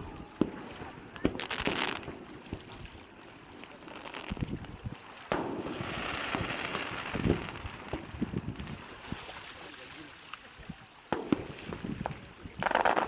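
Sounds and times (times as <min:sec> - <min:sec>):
firework crackling: 0:00.0 - 0:09.2, 0:11.1 - 0:13.0
low firework thumps: 0:04.3 - 0:08.8, 0:11.1 - 0:13.0
sharp firework bang: 0:05.3 - 0:08.2, 0:11.2 - 0:13.0.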